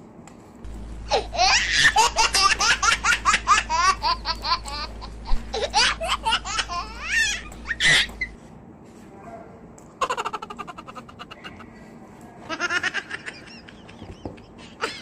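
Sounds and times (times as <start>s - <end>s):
high-pitched laughter: 1.1s - 8.3s, 10.0s - 11.8s, 12.4s - 15.0s.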